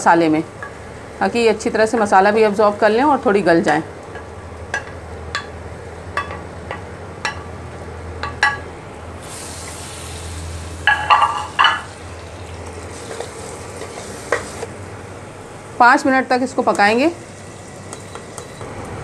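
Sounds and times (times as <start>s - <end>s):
vegetables sizzling in oil: 9.2s - 19.0s.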